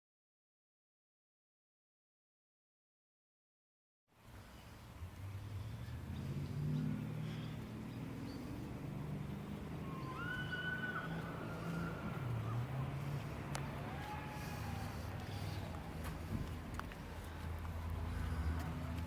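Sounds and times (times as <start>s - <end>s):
whistled bird calls: 9.8s - 12.1s.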